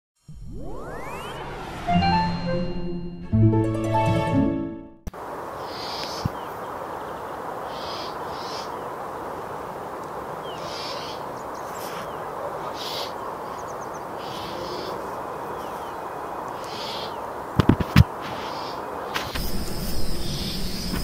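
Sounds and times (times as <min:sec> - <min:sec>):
steady background hiss: 0:05.1 - 0:21.0.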